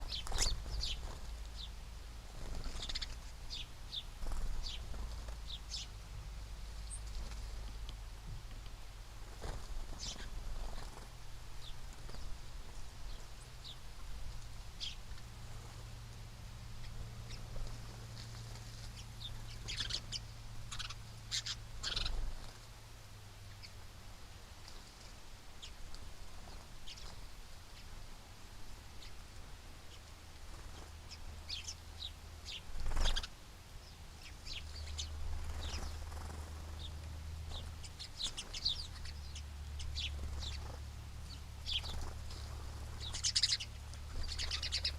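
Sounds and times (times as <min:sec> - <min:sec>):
small birds chirping: 0:00.0 - 0:44.9
steady low hum: 0:00.0 - 0:44.9.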